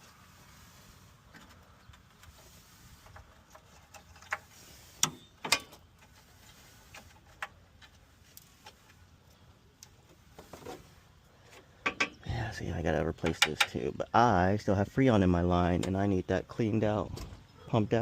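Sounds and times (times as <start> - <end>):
car parts clicking and knocking: 3.1 - 6.2, 11.5 - 12.2, 13.1 - 13.8.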